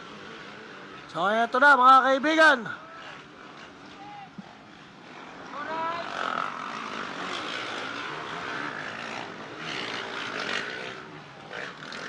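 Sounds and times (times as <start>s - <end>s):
motocross bike engines: 0.0s - 12.0s.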